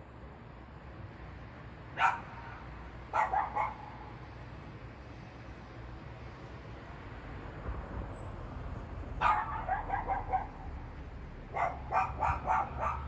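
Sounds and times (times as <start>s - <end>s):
low traffic rumble: 0.0s - 13.0s
dog barking: 2.0s - 4.0s, 9.2s - 10.7s, 11.5s - 13.0s.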